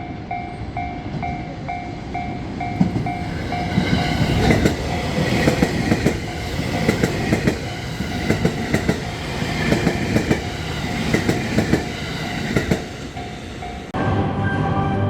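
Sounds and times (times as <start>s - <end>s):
train rumble: 0.0s - 15.0s
train wheels clacking over rails: 1.1s - 14.0s
music: 13.6s - 15.0s.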